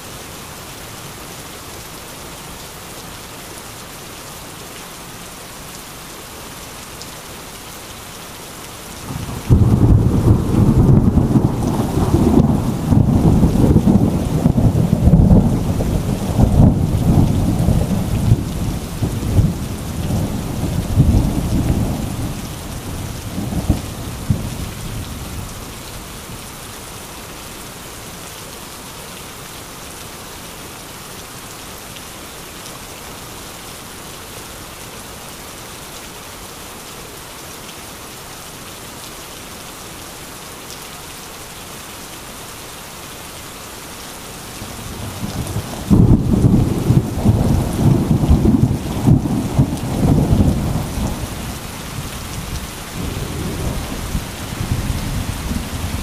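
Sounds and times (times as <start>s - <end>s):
heavy rain falling: 0.0s - 56.0s
thunder rumbling: 9.1s - 25.5s, 44.8s - 56.0s.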